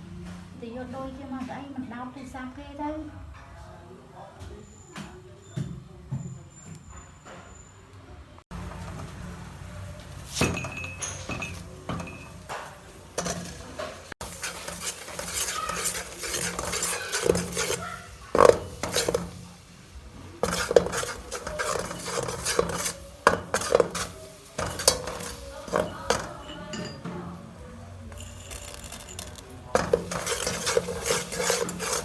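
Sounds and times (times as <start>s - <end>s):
utensils clinking against cookware: 10.2s - 19.5s, 20.4s - 27.4s, 28.0s - 32.0s.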